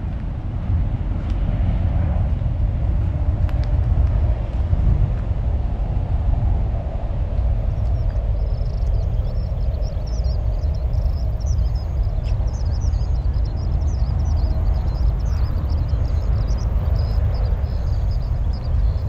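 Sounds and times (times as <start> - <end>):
steady low rumble: 0.0 - 19.0
small birds chirping: 7.6 - 19.0.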